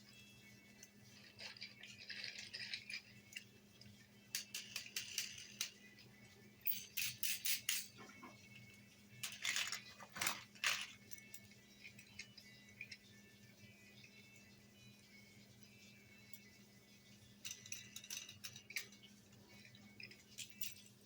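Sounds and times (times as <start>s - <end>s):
faint steady hum: 0.0s - 21.0s
plastic toys rattling in a box: 1.1s - 3.2s, 4.3s - 5.8s, 9.2s - 11.3s.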